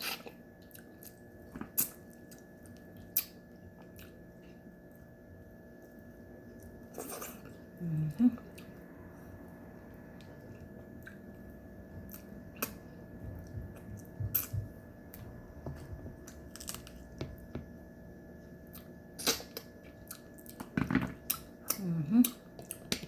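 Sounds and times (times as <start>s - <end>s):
faint steady hum: 0.0s - 23.0s
person chewing: 5.8s - 17.6s, 18.6s - 23.0s.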